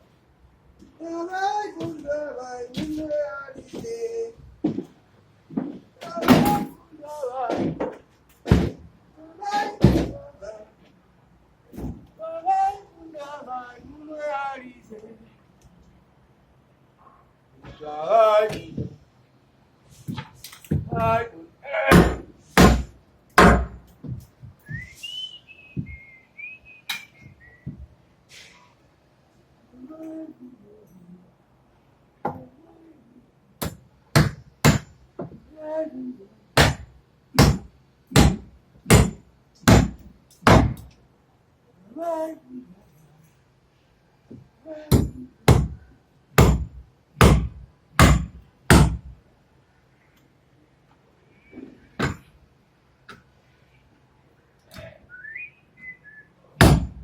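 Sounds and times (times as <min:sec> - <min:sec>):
hammer striking: 0:21.9 - 0:23.8, 0:33.6 - 0:35.0, 0:36.6 - 0:40.8, 0:46.4 - 0:49.0, 0:56.6 - 0:57.0
sharp knocks: 0:21.9 - 0:24.9, 0:36.6 - 0:40.9, 0:46.4 - 0:49.1, 0:56.6 - 0:57.0
person whistling a tune: 0:24.7 - 0:27.7, 0:55.1 - 0:56.3.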